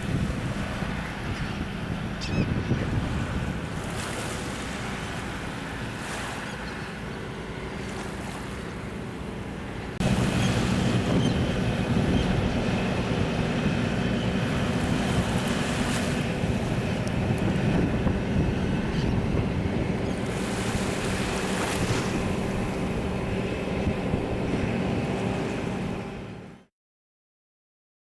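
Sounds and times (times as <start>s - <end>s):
wind on microphone: 0.0s - 4.3s, 10.0s - 26.2s
sea surf: 0.0s - 26.6s.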